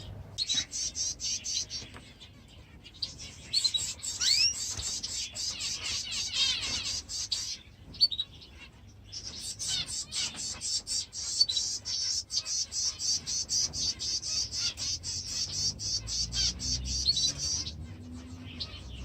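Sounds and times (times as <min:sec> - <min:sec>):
birds chirping and chattering: 0:00.0 - 0:19.0.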